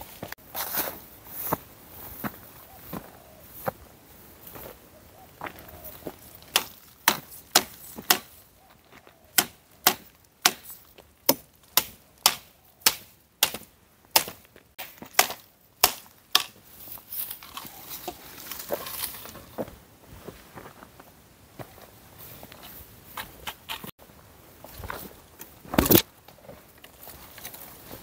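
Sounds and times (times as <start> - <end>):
wood being chopped by hand: 6.5 - 8.3, 9.3 - 16.6.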